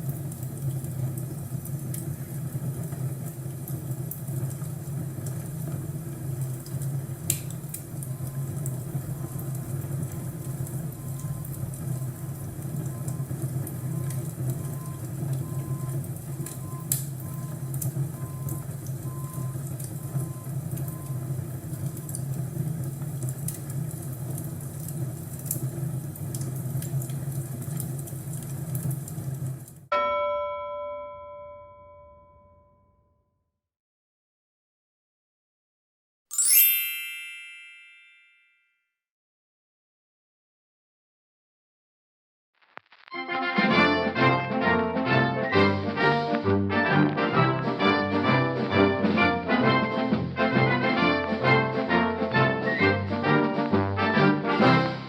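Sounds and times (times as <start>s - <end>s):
fire burning with low rush: 0.0s - 29.8s
fire popping and crackling: 0.0s - 29.8s, 42.6s - 43.3s.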